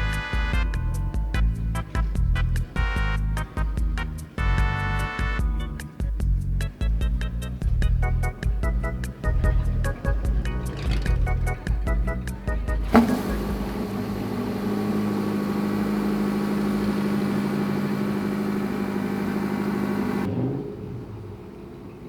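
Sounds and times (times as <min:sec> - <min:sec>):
sports car engine revving: 0:08.2 - 0:22.0.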